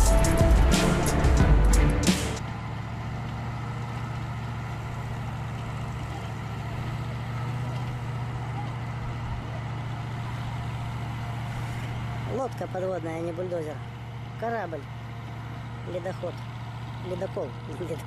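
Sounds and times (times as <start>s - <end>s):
loud music: 0.0s - 2.4s
bulldozer diesel engine running: 0.0s - 18.0s.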